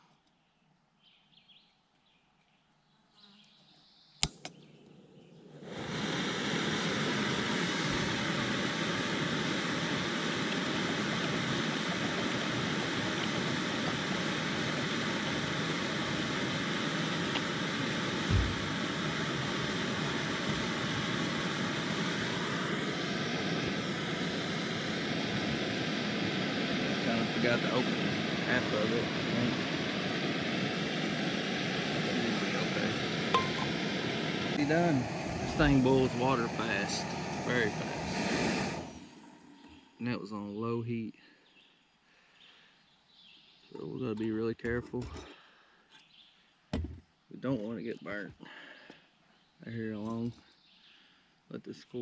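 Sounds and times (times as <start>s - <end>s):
igniter clicks: 4.2s - 5.0s
gas burner hissing: 4.2s - 41.3s, 43.8s - 45.8s.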